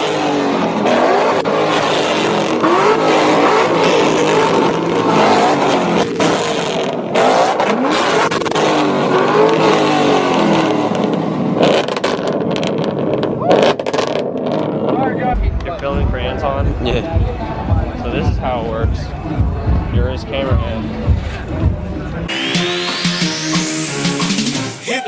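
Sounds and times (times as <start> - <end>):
car engine revving: 0.0 - 15.9, 22.3 - 24.9.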